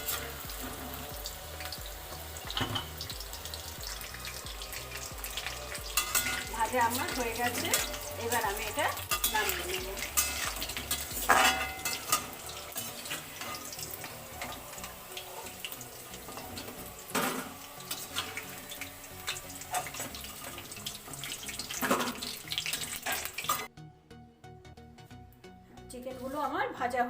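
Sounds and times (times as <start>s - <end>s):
chicken sizzling in hot oil: 0.0s - 23.7s
metal spoon knocking pan: 2.5s - 3.0s, 5.8s - 12.4s.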